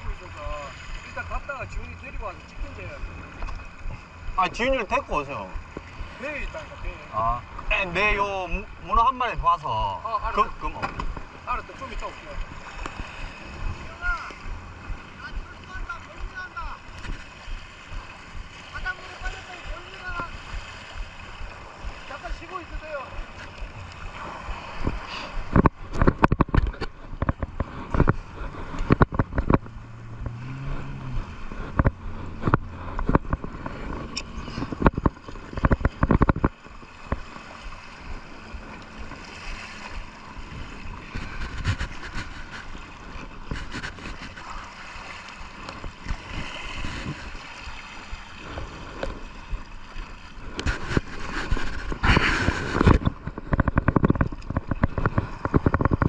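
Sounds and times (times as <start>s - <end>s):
sea water splashing and gurgling: 0.0s - 56.0s
knocks and thumps: 10.8s - 11.3s, 23.1s - 37.3s, 50.6s - 56.0s.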